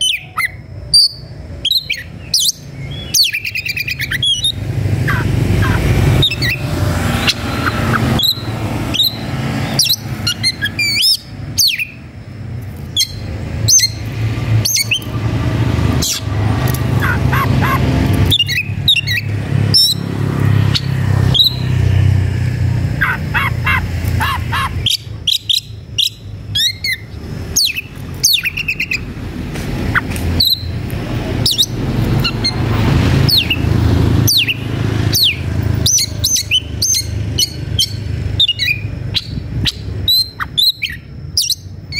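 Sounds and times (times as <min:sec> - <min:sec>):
bird singing whistles and chirps: 0:00.0 - 0:12.0, 0:14.6 - 0:15.1, 0:18.3 - 0:20.0, 0:20.7 - 0:21.8, 0:24.7 - 0:29.1, 0:30.4 - 0:30.8, 0:34.3 - 0:41.9.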